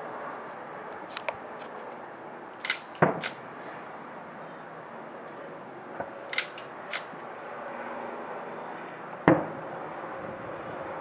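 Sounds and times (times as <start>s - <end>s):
distant fireworks bangs and pops: 9.2s - 9.8s.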